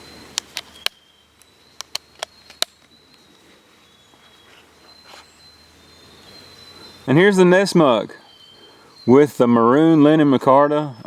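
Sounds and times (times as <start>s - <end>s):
high-pitched insect chirr: 0.0s - 11.0s
sharp clicks: 0.3s - 3.2s.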